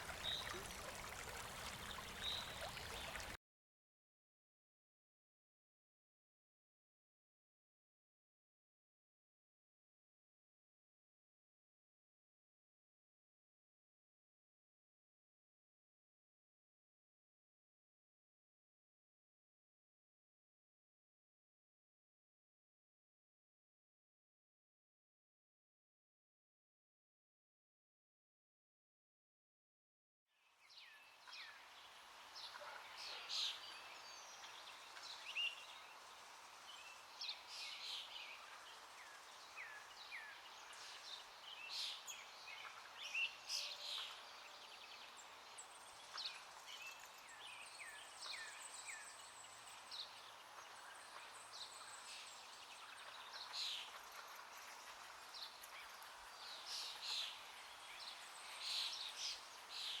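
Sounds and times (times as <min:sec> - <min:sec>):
outdoor background hiss: 0:30.4 - 1:00.0.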